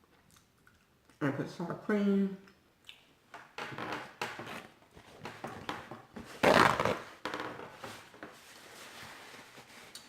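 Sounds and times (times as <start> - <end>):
mouth and chewing sounds: 0.1 - 1.2.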